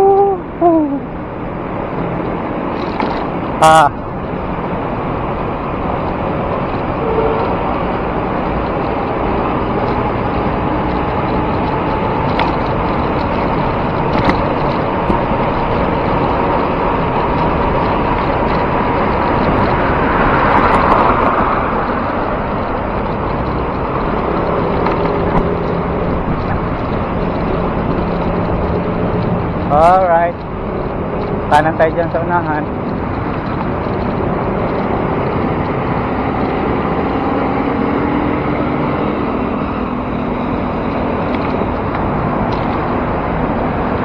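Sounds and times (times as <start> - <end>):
road traffic: 0.0 - 44.0.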